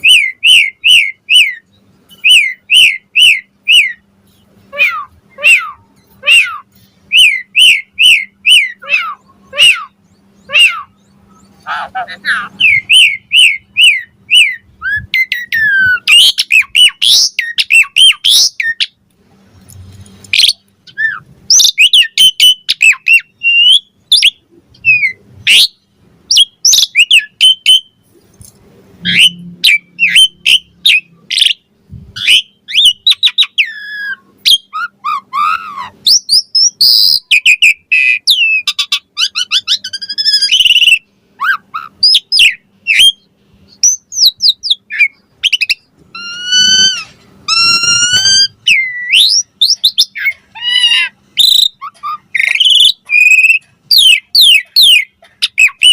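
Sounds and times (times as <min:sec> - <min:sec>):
starling singing: 0:00.0 - 0:19.0, 0:20.2 - 0:28.1, 0:29.0 - 0:55.9.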